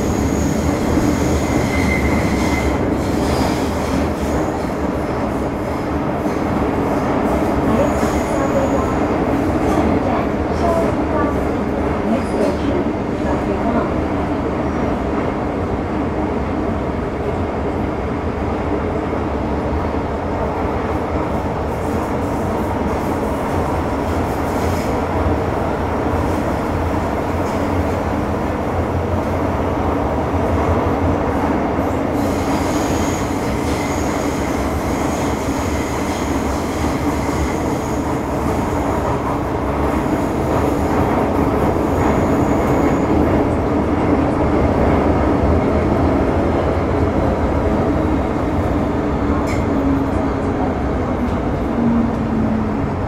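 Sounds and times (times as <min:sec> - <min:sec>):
high wheel squeal: 0:00.0 - 0:02.8.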